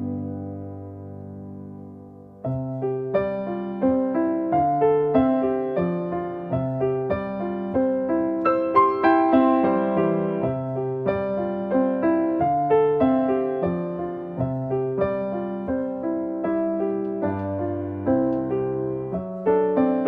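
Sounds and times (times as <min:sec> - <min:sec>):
solo piano playing: 0:00.0 - 0:20.0.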